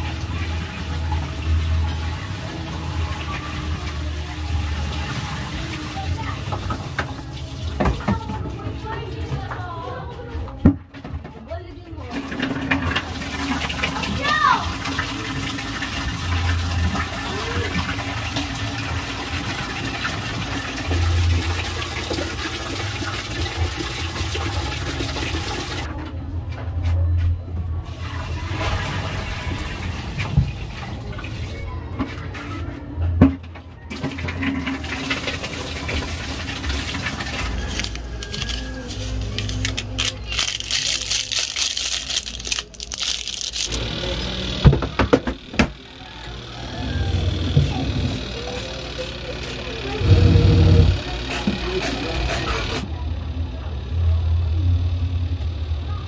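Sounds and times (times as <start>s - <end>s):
water rushing into washing machine: 0.0s - 9.8s, 12.0s - 25.9s, 27.9s - 32.5s, 33.2s - 53.0s
low motor hum: 0.0s - 56.0s
crinkling handling noise: 37.3s - 43.8s.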